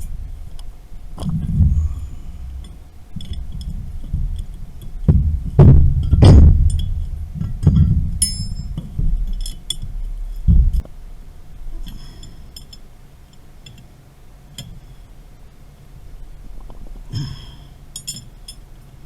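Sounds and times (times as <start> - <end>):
low thumps: 0.0 - 11.8
metallic clinks of tools: 7.5 - 9.8, 11.9 - 13.8, 17.2 - 18.7.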